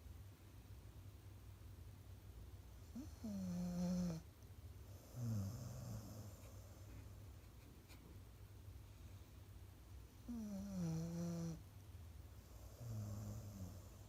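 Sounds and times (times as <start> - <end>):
dog snoring: 2.9 - 4.3, 4.9 - 6.8, 10.2 - 11.6, 12.4 - 14.0.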